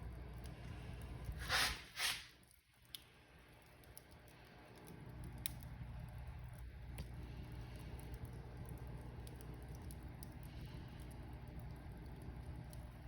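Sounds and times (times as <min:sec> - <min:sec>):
fire crackles and pops: 0:00.0 - 0:13.0
wood fire rumbling: 0:00.0 - 0:13.0
hissing bursts: 0:01.4 - 0:02.3.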